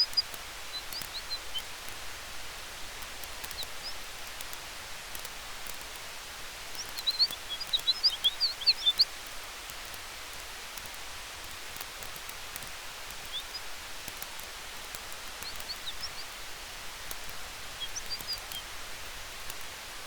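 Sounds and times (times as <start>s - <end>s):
campfire hiss: 0.0s - 20.0s
fire crackling: 0.0s - 20.0s
high chirps: 6.8s - 9.1s, 15.4s - 16.4s, 17.7s - 18.6s.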